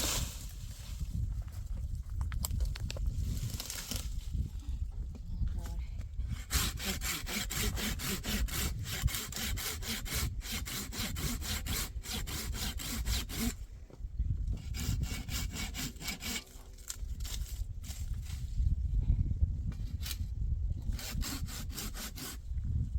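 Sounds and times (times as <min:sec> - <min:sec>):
hand saw cutting wood: 0:06.3 - 0:13.6, 0:14.6 - 0:17.6, 0:20.9 - 0:22.5.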